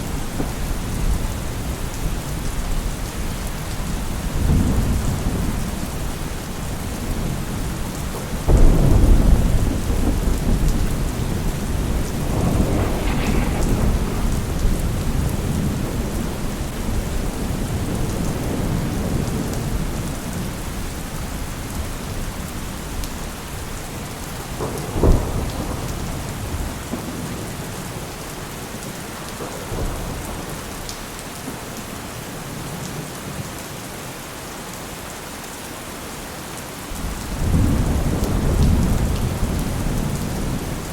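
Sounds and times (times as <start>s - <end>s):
thunder claps and rumbles: 0.0s - 33.4s, 36.9s - 40.9s
steady rain: 0.0s - 40.9s.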